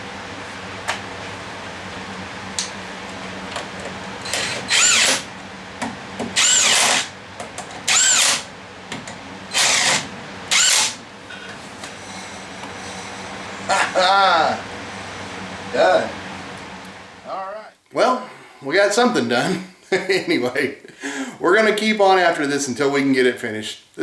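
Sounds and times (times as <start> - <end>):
power drill bursts: 4.2 - 5.3, 6.4 - 7.1, 7.9 - 8.5, 9.5 - 11.0.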